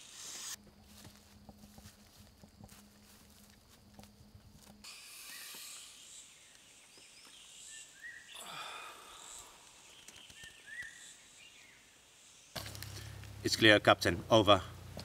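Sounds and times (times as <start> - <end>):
insect hiss: 0.0 - 13.9
footsteps on dry leaves: 0.6 - 5.4
bird chirps: 5.0 - 8.4, 9.0 - 12.0.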